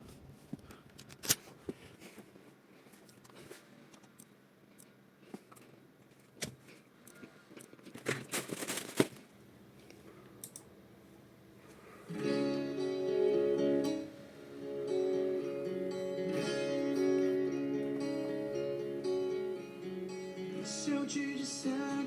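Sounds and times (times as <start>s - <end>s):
objects clicking and rustling: 3.0s - 9.3s
acoustic guitar music: 12.1s - 22.0s.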